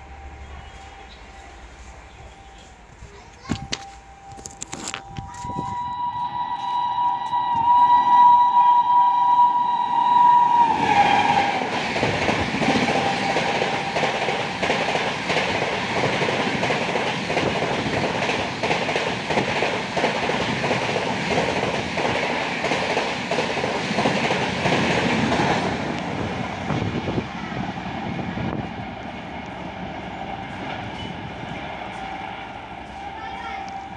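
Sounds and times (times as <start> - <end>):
train horn: 4.0 - 12.0, 12.6 - 14.5
train wheels clattering on rails: 10.3 - 33.9.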